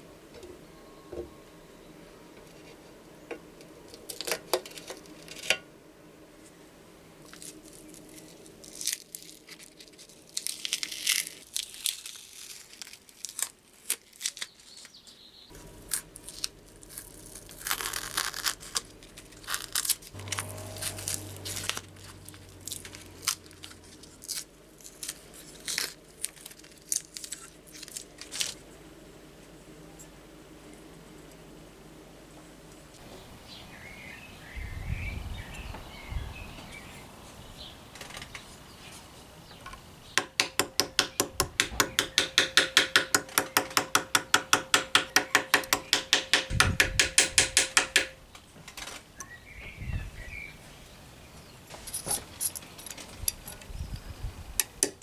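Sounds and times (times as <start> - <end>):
low steady hum: 15.5 - 55.0
rasping scraping strokes: 19.4 - 22.2.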